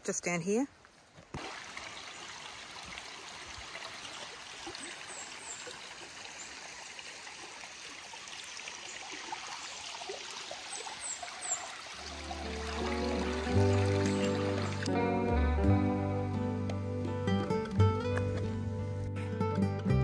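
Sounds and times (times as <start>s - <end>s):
creek babbling: 1.3s - 15.1s.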